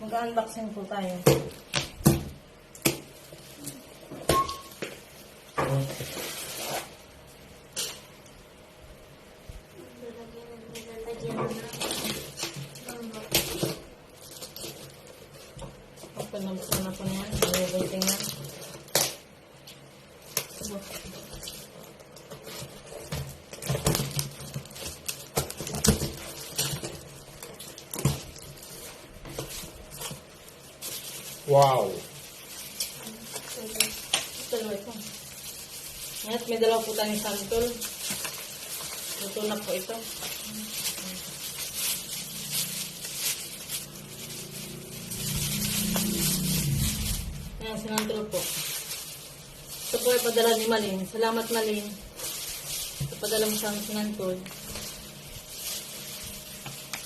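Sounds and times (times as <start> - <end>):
packaging scraping: 11.2 - 19.3, 20.1 - 57.0
packaging rustling: 11.2 - 57.0.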